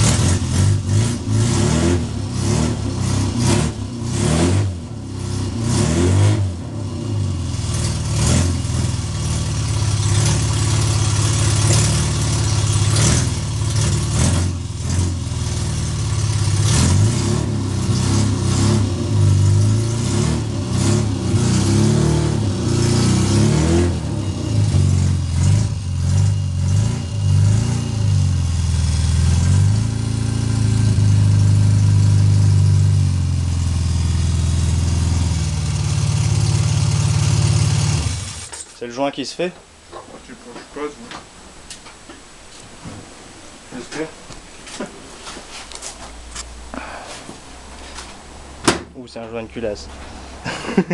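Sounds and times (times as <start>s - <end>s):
car engine revving: 0.0s - 38.5s.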